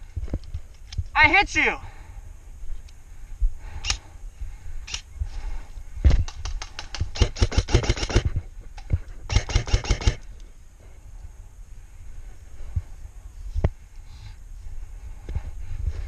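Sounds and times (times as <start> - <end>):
airsoft gun shots: 7.1 - 8.3, 9.3 - 10.2.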